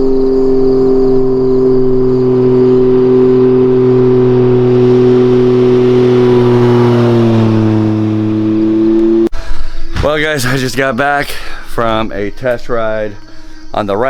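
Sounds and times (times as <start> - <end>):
motorcycle engine running at steady revs: 0.0 - 9.3.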